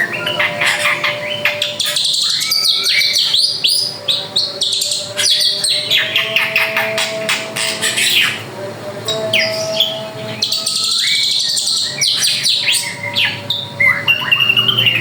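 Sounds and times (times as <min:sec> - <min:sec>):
bird singing whistles and chirps: 0:00.0 - 0:08.4, 0:09.4 - 0:15.0.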